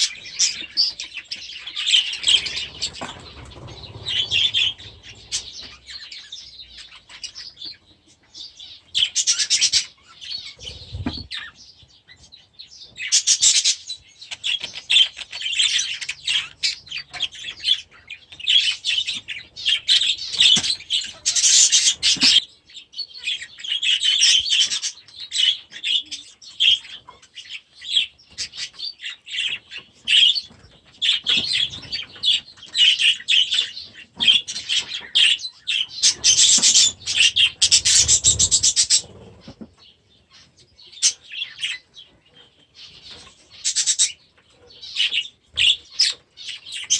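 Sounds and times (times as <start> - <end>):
budgerigars calling loudly: 0.0 - 11.6, 13.0 - 39.6, 42.8 - 46.9
budgerigars chattering and chirping: 0.0 - 46.9
wings flapping: 2.2 - 5.8, 36.2 - 39.7.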